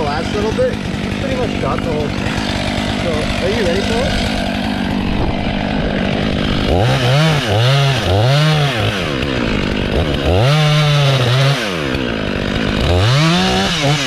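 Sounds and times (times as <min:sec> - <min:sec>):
chainsaw revving: 0:00.0 - 0:14.0.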